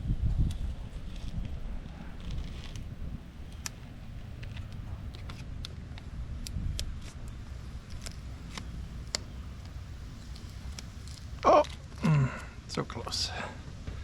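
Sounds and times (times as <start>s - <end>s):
steady low rumble: 0.0s - 14.0s
clicks and crackles of vinyl decal: 0.4s - 12.0s.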